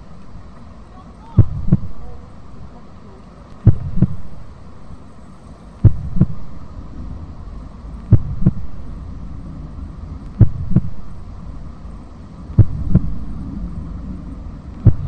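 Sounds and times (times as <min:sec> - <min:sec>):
steady low hum: 0:00.0 - 0:15.0
heartbeat thumps: 0:01.4 - 0:02.3, 0:03.6 - 0:04.5, 0:05.8 - 0:15.0.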